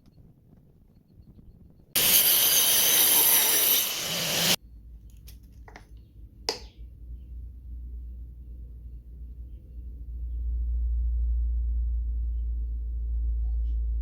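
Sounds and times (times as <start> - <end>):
angle grinder cutting: 2.0 - 4.6.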